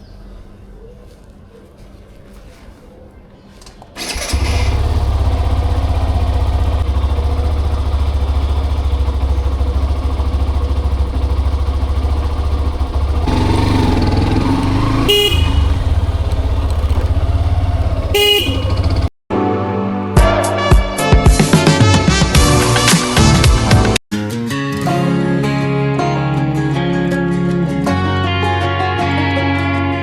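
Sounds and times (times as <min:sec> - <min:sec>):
motorcycle engine running: 0:04.0 - 0:19.2
vehicle horn honking: 0:11.4 - 0:19.1.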